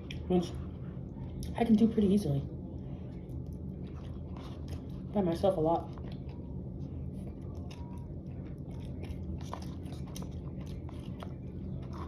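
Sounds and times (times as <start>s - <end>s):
close chewing and biting: 3.0s - 12.0s.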